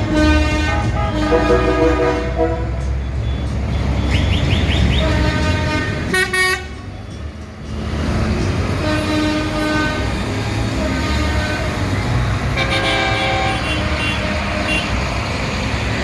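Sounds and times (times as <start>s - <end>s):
horn toot: 0.0s - 3.0s, 4.0s - 6.8s, 8.8s - 15.0s
tractor engines running: 0.0s - 16.0s
horn chirps: 0.2s - 6.8s.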